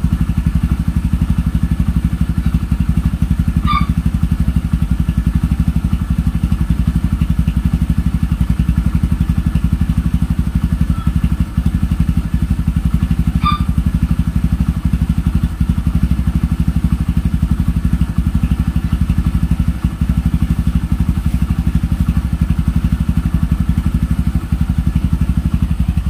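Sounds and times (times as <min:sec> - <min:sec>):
motorcycle engine idling: 0:00.0 - 0:26.0
brief high chirp: 0:13.4 - 0:13.7.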